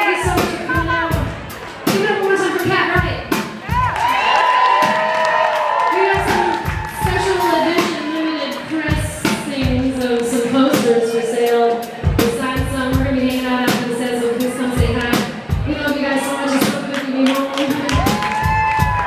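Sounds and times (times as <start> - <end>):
drum hits: 0.2 - 5.2, 6.0 - 8.1.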